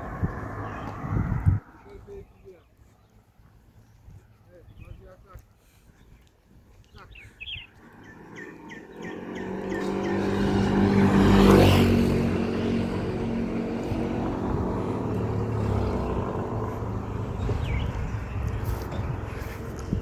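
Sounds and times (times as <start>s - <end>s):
motor vehicle passing: 0.0s - 2.4s, 7.7s - 20.0s
bird chirping: 0.5s - 12.7s, 15.0s - 20.0s.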